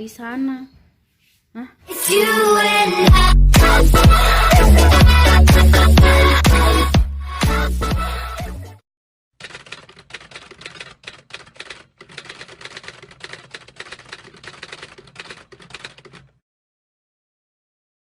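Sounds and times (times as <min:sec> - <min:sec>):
rapid dry clicking: 0:09.4 - 0:16.4.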